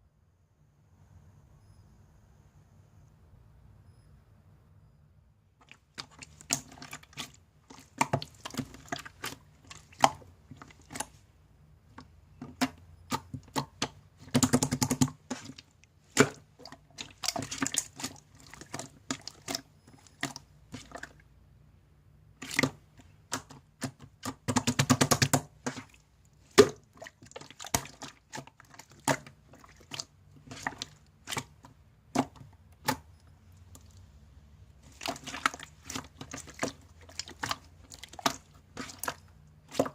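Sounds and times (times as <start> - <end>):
slime squeezed with sticky pops: 12.4 - 21.1.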